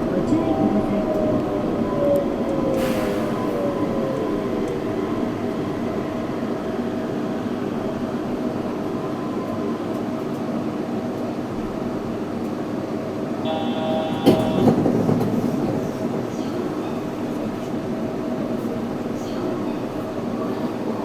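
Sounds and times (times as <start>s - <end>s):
train rolling rumble: 0.0s - 21.0s
high tone: 13.5s - 14.9s.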